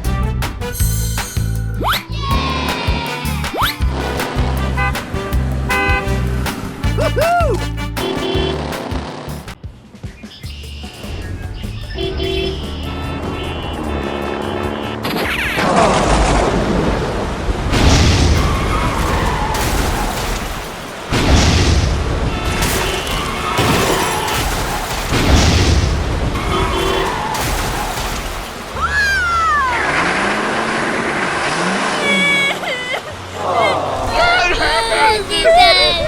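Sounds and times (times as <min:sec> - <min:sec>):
loud crashes: 0:12.3 - 0:31.7.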